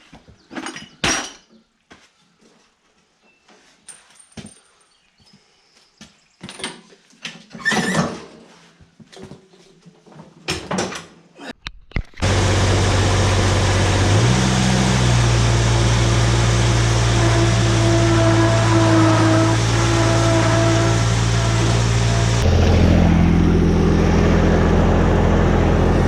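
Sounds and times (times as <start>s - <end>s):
diesel mower engine running: 12.2s - 26.0s.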